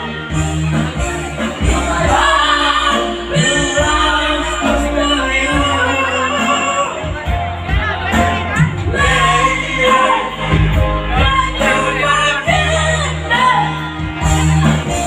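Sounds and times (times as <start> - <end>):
band backing: 0.0 - 15.0
woman singing a ballad: 8.3 - 14.1.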